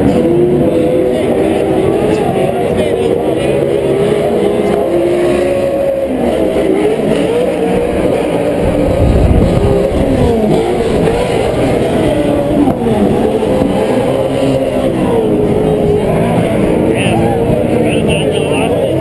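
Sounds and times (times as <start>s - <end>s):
race truck engines revving: 0.0s - 19.0s
low rumble: 8.6s - 13.5s.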